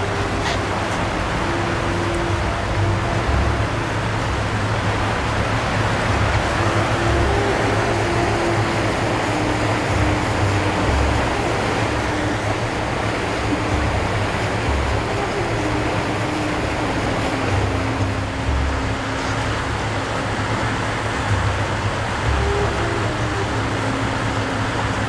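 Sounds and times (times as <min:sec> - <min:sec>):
rushing wind and water: 0:00.0 - 0:25.0
wind buffeting microphone: 0:00.0 - 0:25.0.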